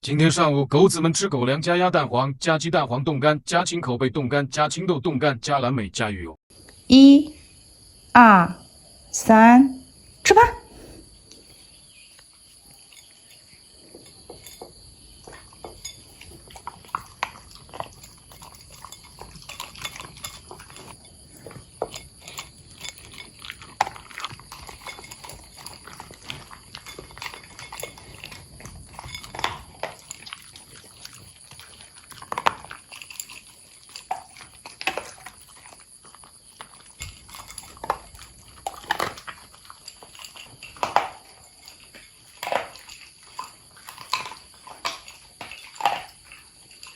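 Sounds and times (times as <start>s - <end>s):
dogs crunching dry food: 10.0s - 46.9s.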